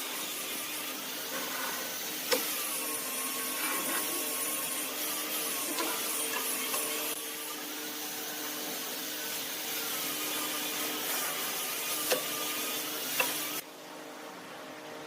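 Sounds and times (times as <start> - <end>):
scraping hiss on spinning wood: 0.0 - 7.2, 8.8 - 13.6
lathe motor hum: 0.0 - 13.6.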